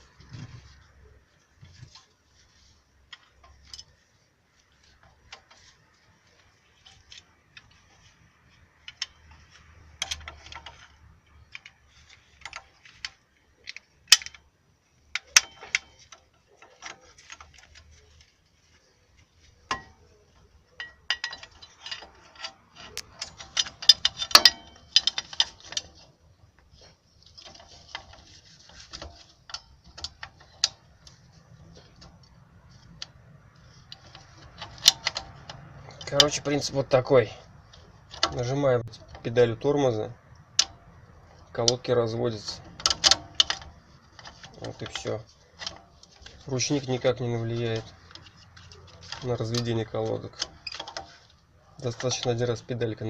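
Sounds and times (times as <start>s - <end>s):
metal clicks and knocks: 4.8s - 18.4s, 19.2s - 53.0s
brake adjuster ratcheting: 8.8s - 14.4s, 19.6s - 53.0s.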